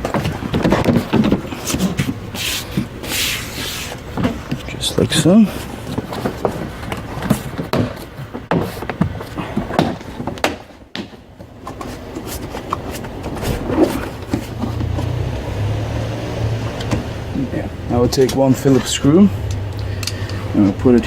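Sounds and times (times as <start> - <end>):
car door parts clicking and rattling: 0.0 - 3.1, 3.9 - 15.0
steady low hum: 0.0 - 21.0.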